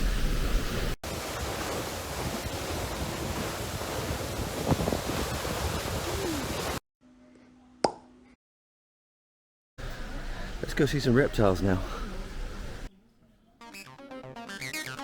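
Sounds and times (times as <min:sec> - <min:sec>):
wind buffeting microphone: 0:00.5 - 0:06.8
waterfall roar: 0:01.1 - 0:06.8.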